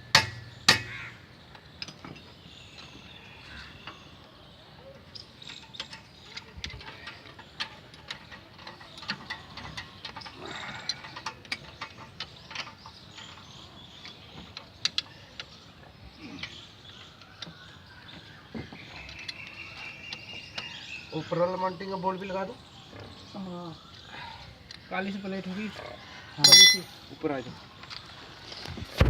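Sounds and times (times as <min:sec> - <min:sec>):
tools clicking against metal: 0:26.4 - 0:26.9.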